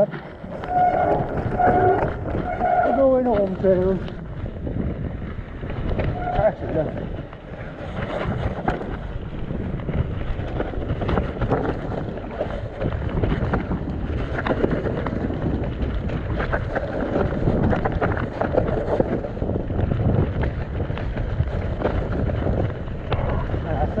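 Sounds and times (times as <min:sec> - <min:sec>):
bike rattling and knocking: 0:00.0 - 0:24.0
wind rushing over microphone: 0:00.0 - 0:24.0.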